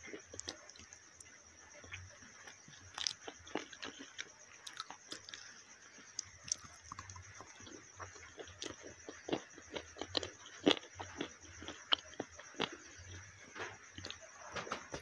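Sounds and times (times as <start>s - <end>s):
close chewing and biting: 0.0s - 1.0s, 1.9s - 13.3s
soft food crunches: 0.0s - 1.0s, 1.8s - 15.0s.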